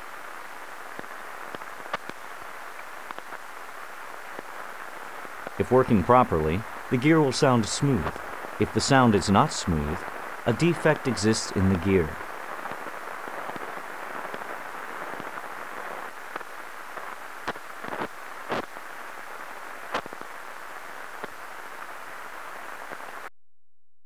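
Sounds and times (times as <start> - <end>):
ultrasound detector hiss: 0.0 - 23.2
sharp clicks and pops: 7.9 - 8.4.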